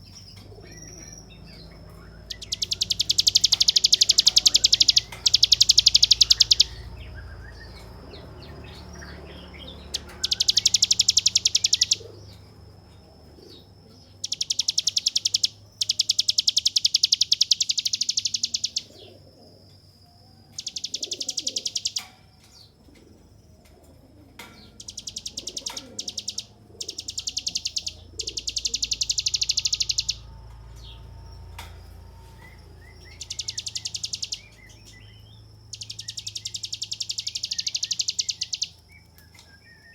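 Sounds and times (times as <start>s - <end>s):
bird singing buzzing trill: 0.0s - 12.6s, 13.3s - 19.7s, 20.4s - 22.8s, 24.5s - 39.9s.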